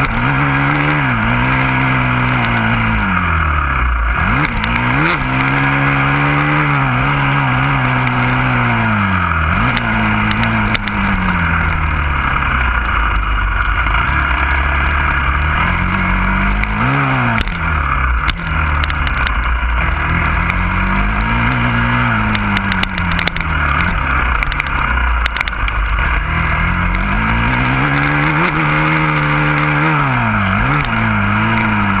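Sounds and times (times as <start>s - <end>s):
dirt bike engine revving: 0.0s - 32.0s
sharp knocks and clatters: 18.2s - 30.0s.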